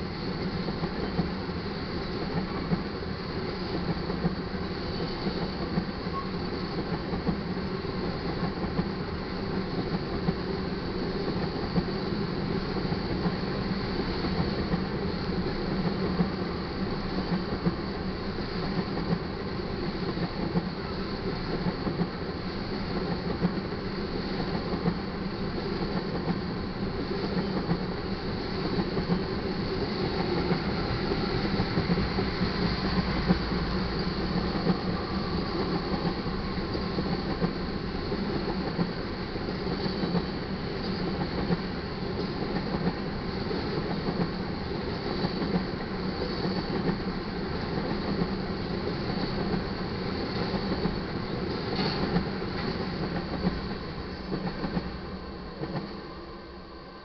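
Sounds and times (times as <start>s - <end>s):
steel wheels rumbling on rail: 0.0s - 57.0s
wheels clicking over rail joints: 50.3s - 54.9s.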